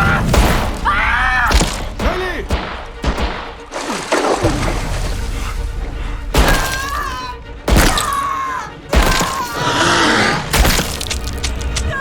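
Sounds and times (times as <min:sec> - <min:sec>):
low rumbling music score: 0:00.0 - 0:12.0
strained cry or groan: 0:08.2 - 0:10.6.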